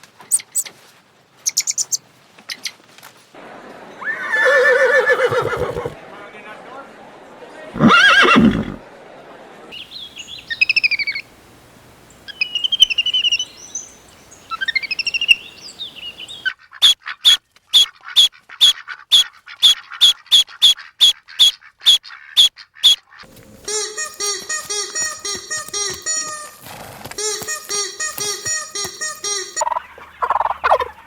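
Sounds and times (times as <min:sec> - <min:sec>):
harsh warbling bird calls: 0:01.5 - 0:02.7, 0:09.8 - 0:16.8, 0:21.3 - 0:26.6, 0:27.2 - 0:31.0
short sharp bird chirps: 0:01.5 - 0:02.7, 0:09.7 - 0:11.2, 0:12.3 - 0:16.5.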